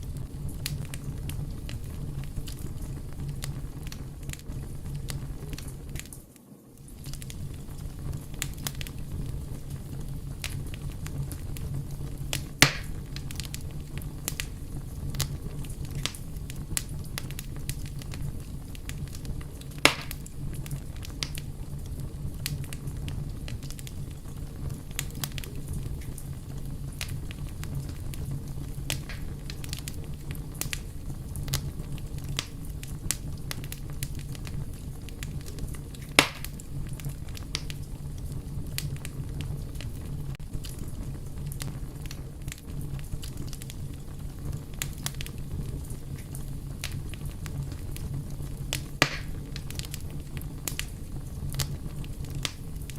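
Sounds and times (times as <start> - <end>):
fire crackling: 0.0 - 52.9
loud sharp pops: 12.6 - 13.0, 19.8 - 20.3, 28.9 - 29.3, 36.1 - 36.6, 49.0 - 49.4.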